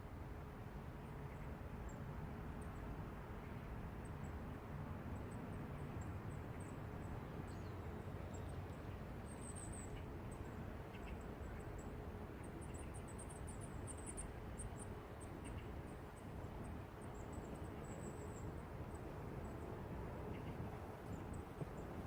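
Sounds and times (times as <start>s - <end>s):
faint steady hum: 0.0s - 22.0s
distant traffic rumble: 5.0s - 22.0s.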